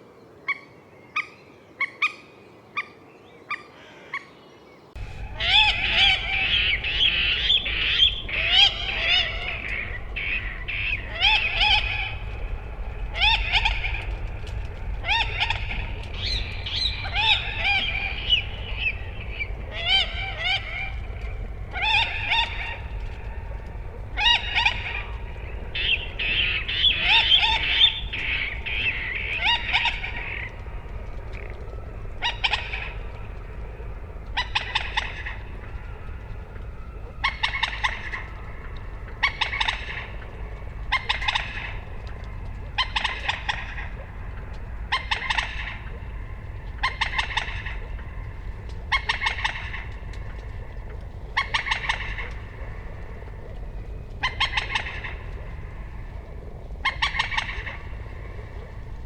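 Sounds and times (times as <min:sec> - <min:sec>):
moorhen calling harsh notes: 0:05.0 - 0:36.1
steady low rumble: 0:05.0 - 0:59.0.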